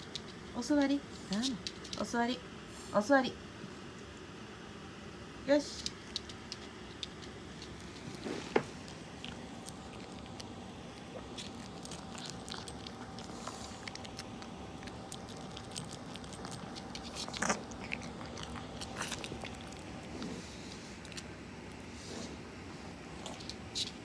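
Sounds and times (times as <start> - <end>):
dog crunching food: 5.8 - 20.3, 23.0 - 24.0.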